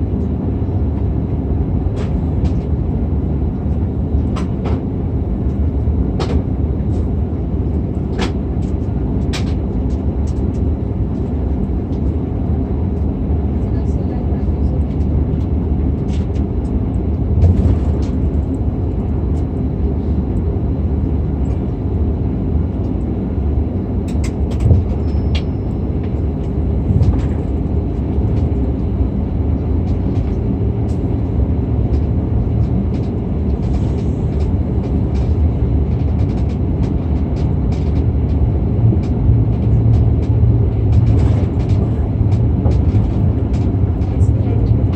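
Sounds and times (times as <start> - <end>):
airliner cabin rumble: 0.0 - 44.9
light clicks and rattles: 31.9 - 44.9.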